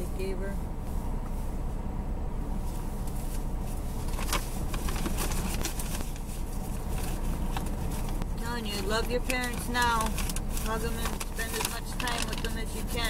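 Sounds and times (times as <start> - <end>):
car engine idling: 0.0 - 13.0
paper card rustling: 3.7 - 13.0.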